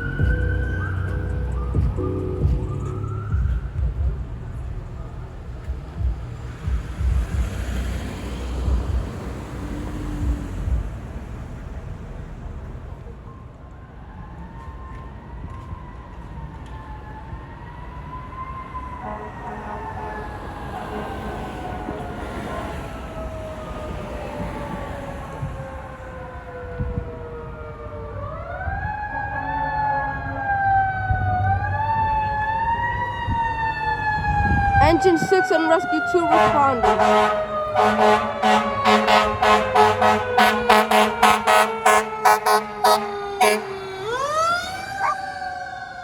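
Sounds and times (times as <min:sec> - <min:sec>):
fire truck siren wailing: 0:00.0 - 0:46.0
traffic hum: 0:00.0 - 0:46.0
vehicle rumble: 0:00.0 - 0:46.0
wind buffeting microphone: 0:20.4 - 0:29.8, 0:30.8 - 0:37.8.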